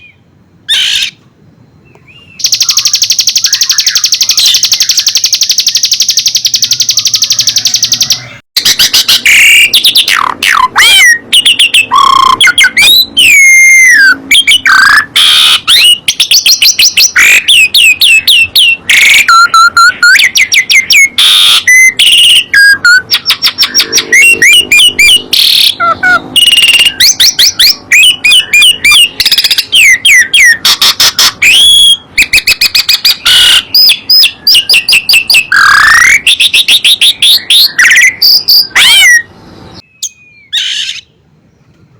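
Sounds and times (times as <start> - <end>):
songbird singing: 0.0 - 41.9.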